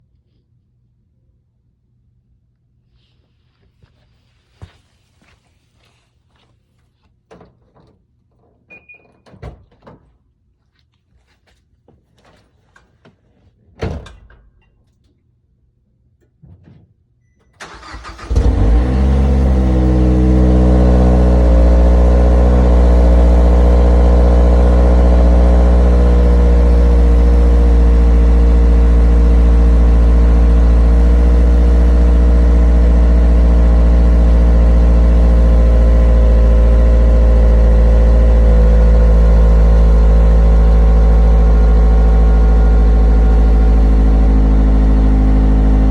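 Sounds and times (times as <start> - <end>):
car engine cranking: 17.6 - 45.9
car engine idling: 17.6 - 45.9.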